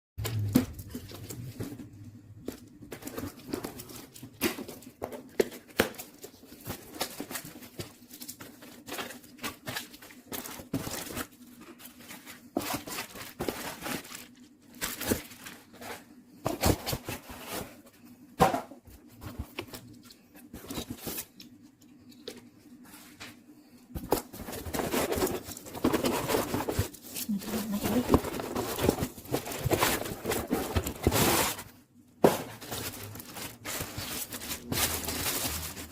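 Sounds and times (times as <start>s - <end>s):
crinkling and tearing: 32.5s - 35.9s.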